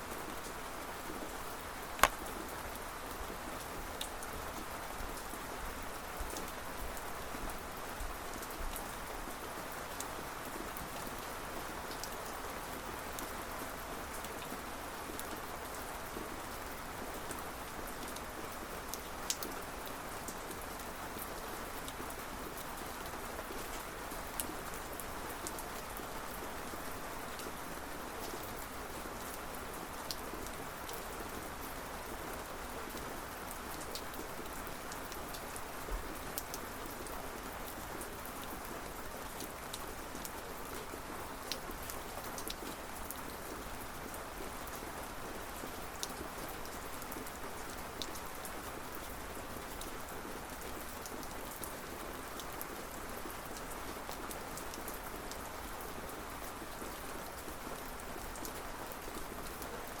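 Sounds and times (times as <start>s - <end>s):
raindrops ticking on surface: 1.9s - 2.5s.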